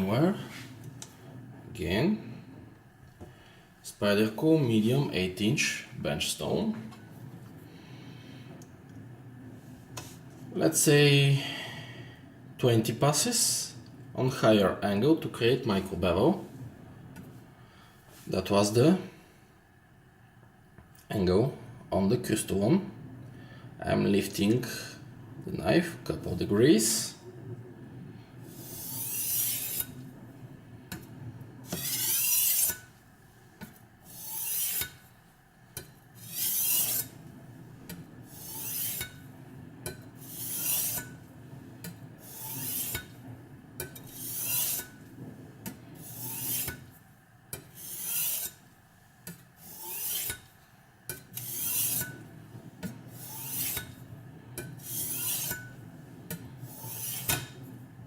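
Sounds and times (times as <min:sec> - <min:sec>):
knife scraping on sharpening stone: 0:28.6 - 0:29.9, 0:31.7 - 0:32.9, 0:34.1 - 0:35.0, 0:36.2 - 0:37.2, 0:38.3 - 0:39.2, 0:39.9 - 0:41.2, 0:42.2 - 0:43.2, 0:43.8 - 0:45.0, 0:46.0 - 0:46.8, 0:47.5 - 0:48.6, 0:49.6 - 0:50.5, 0:51.1 - 0:52.2, 0:53.2 - 0:54.0, 0:54.6 - 0:57.6.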